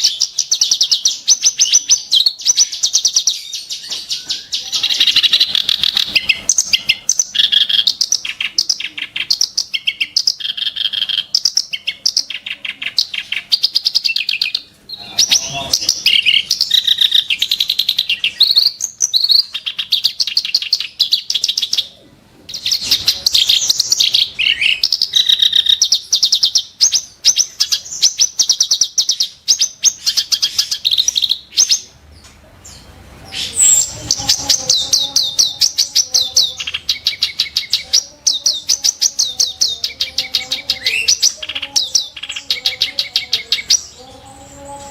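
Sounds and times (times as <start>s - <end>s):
bird singing harsh phrases: 0.0s - 44.9s.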